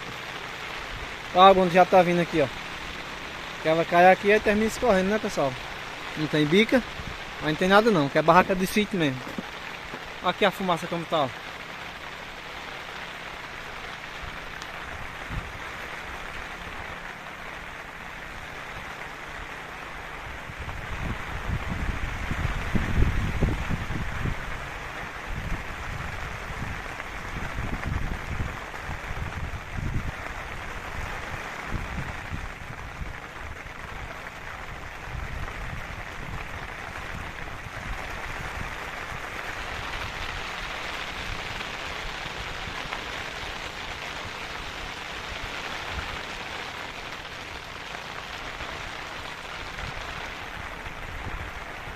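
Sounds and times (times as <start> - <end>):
steady rain falling: 0.0 - 51.9
wind buffeting microphone: 14.1 - 17.0, 20.0 - 51.9.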